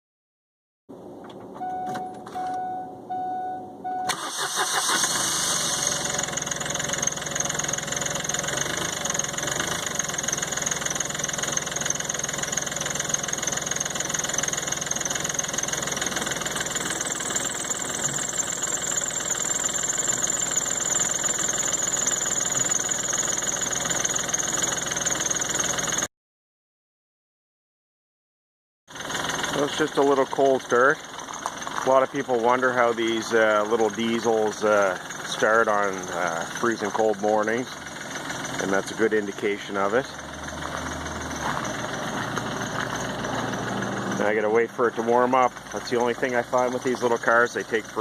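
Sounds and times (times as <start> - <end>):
short beeping tones: 1.6 - 4.2
diesel engine starting and idling: 1.6 - 26.1, 28.9 - 48.0.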